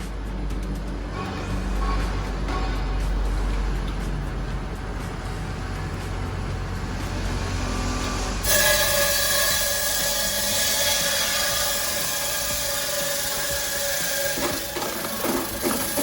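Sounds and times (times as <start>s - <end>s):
ice cutting machine whining: 3.7s - 16.0s.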